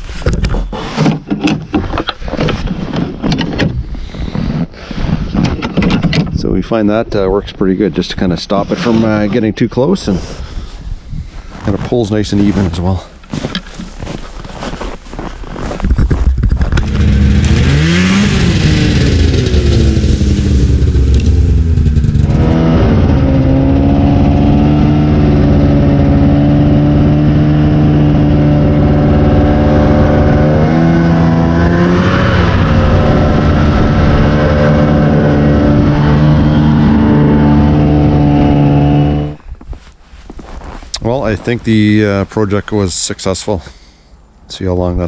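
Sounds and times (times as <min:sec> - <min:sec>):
snowmobile engine revving: 0:16.8 - 0:39.4.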